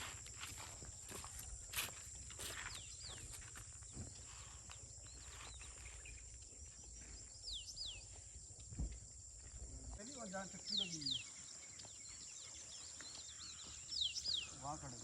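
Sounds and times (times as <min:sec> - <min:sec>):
insect drone: 0:00.0 - 0:15.0.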